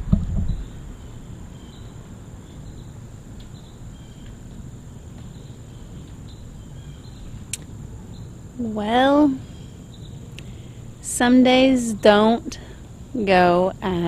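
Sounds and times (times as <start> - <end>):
low rumble: 0.0 - 1.6
high insect drone: 0.5 - 14.0.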